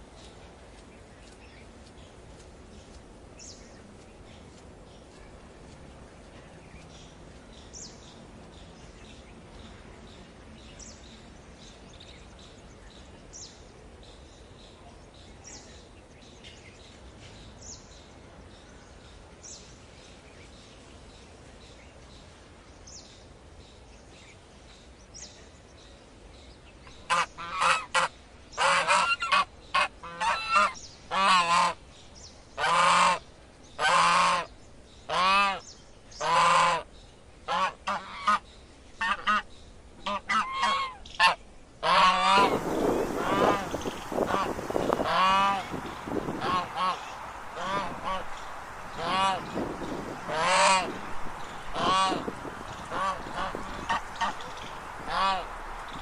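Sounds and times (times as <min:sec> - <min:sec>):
bird calling loudly: 0:40.3 - 0:56.0.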